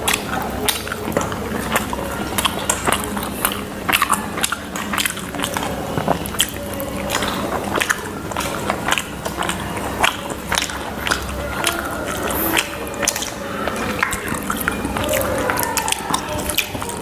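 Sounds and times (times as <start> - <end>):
people chewing: 0.0 - 17.0
wet mouth clicks and smacks: 0.0 - 17.0.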